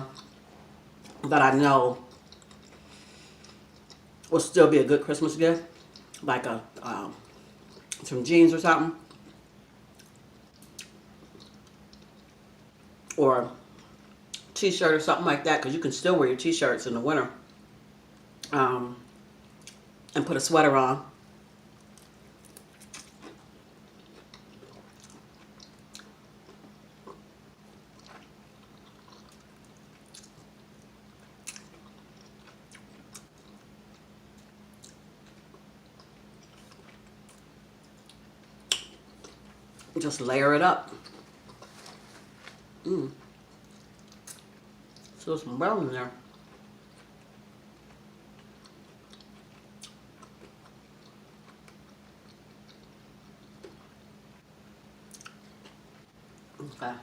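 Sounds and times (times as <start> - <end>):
faint steady hum: 0.0 - 57.0
chewing crispy chicken crunches: 21.8 - 40.0, 46.2 - 54.0.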